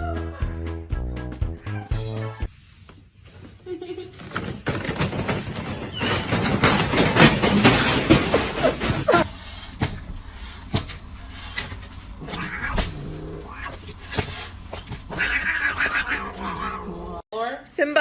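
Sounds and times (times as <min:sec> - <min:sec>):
cat vocalizing: 0:12.1 - 0:17.2.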